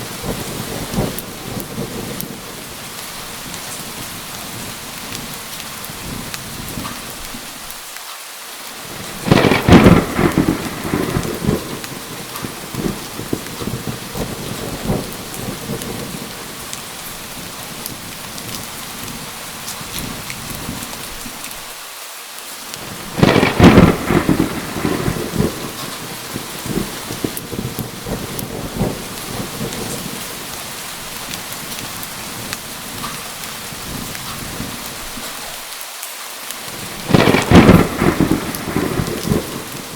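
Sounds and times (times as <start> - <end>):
loud thunderclap: 0.0 - 2.6, 8.9 - 16.6, 22.8 - 30.5, 36.8 - 39.9
thunder rumbling: 0.0 - 7.3, 8.8 - 21.2, 22.8 - 35.3, 36.7 - 39.9
steady rain falling: 0.0 - 39.9.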